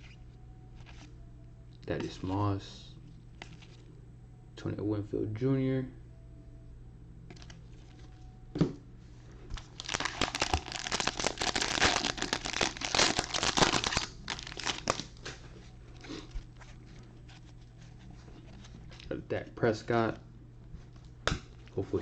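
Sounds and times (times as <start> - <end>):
plastic wrapper tearing and crinkling: 9.5 - 15.4.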